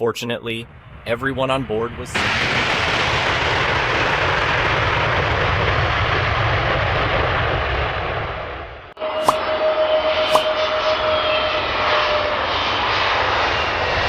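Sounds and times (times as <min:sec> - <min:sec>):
jet aircraft engine: 0:00.6 - 0:14.0
aircraft whine: 0:06.2 - 0:14.0.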